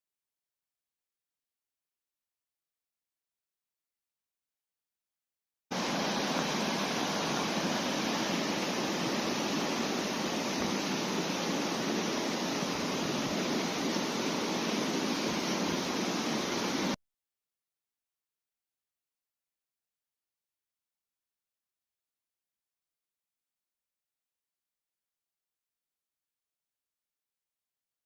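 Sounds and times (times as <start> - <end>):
rushing river water: 5.8 - 17.0.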